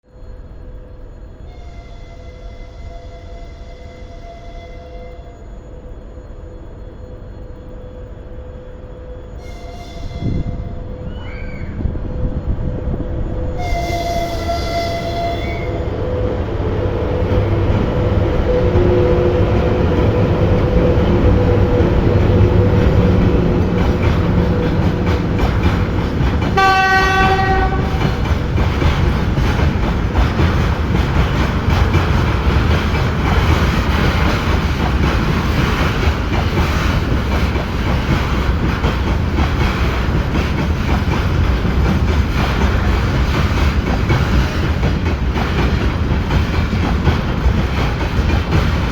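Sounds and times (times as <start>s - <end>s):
freight train rumbling past: 0.0s - 48.9s
train horn blast: 1.5s - 5.4s, 9.4s - 11.0s, 13.6s - 16.2s, 26.5s - 28.2s
wheels clacking over rail joints: 16.8s - 48.9s.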